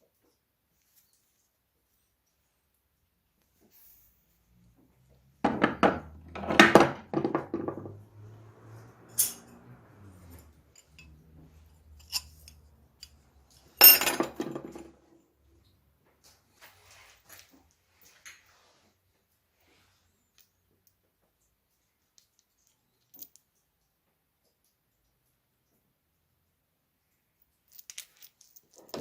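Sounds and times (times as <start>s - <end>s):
metal parts clattering: 11.9s - 14.9s.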